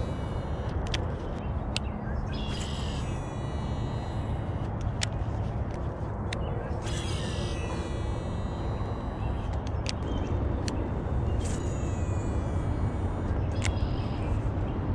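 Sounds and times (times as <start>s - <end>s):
sharp clicks: 0.0s - 14.9s
steady low rumble: 0.0s - 14.9s
short harsh calls: 6.7s - 9.6s.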